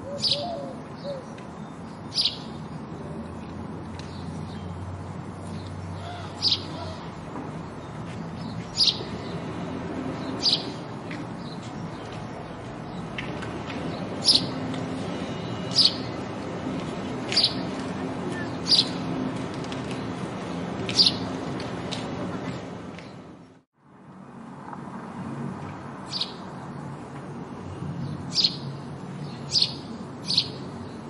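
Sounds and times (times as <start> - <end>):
sparrow chirping: 0.0 - 2.8, 5.4 - 7.0, 7.6 - 13.1, 13.8 - 16.2, 17.2 - 19.2, 20.9 - 21.3, 26.0 - 26.4, 28.0 - 31.0.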